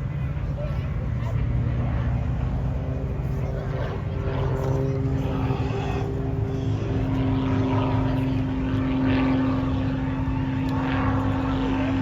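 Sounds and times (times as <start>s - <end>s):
propeller airplane engine droning: 0.0s - 12.0s.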